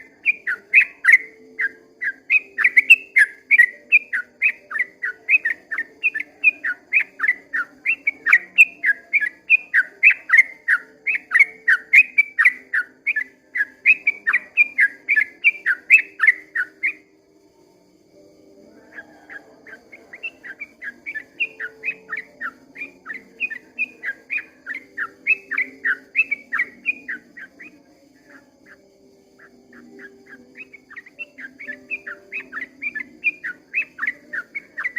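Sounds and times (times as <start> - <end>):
bird singing whistled notes: 0.0 - 34.9.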